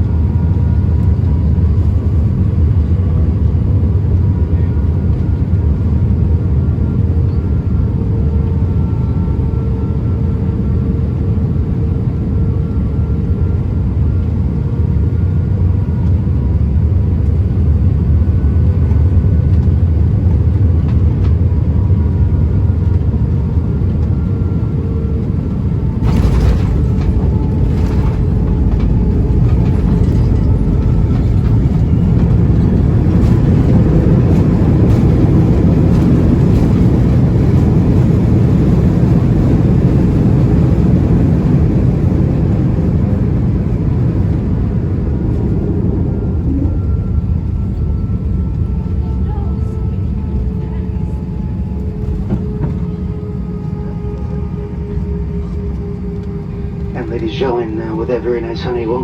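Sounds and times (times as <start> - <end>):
airplane cabin engine rumble: 0.0 - 59.0
faint whining tones: 20.5 - 39.4, 41.0 - 59.0.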